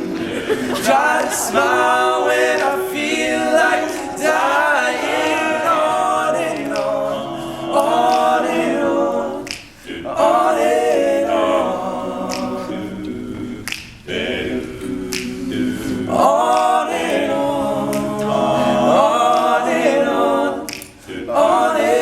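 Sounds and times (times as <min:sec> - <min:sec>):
vocal group singing in harmony: 0:00.0 - 0:22.0
finger snaps: 0:06.6 - 0:07.0, 0:07.7 - 0:08.5, 0:09.4 - 0:10.0, 0:12.3 - 0:14.2, 0:14.8 - 0:15.8, 0:16.5 - 0:17.2, 0:17.9 - 0:18.3, 0:20.6 - 0:21.1.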